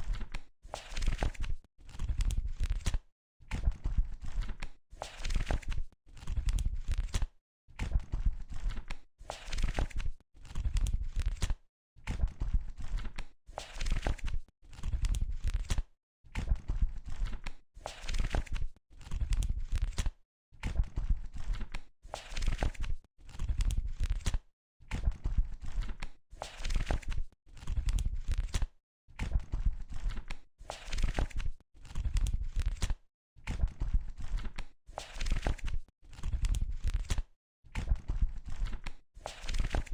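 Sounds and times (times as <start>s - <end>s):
book pages turning: 35.0s - 37.2s, 38.6s - 39.9s.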